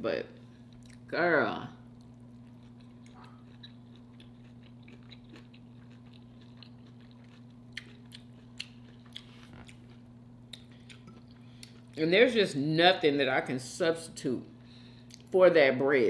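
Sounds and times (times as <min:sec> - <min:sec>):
steady low hum: 0:00.0 - 0:16.0
chewing with mouth clicks: 0:00.7 - 0:01.1, 0:01.9 - 0:12.0, 0:15.0 - 0:15.3.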